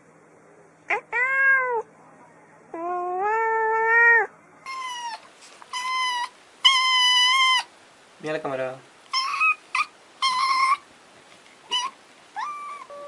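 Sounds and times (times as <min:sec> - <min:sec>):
cats meowing: 0:00.9 - 0:01.9, 0:02.8 - 0:07.7, 0:09.1 - 0:10.8, 0:11.7 - 0:13.0.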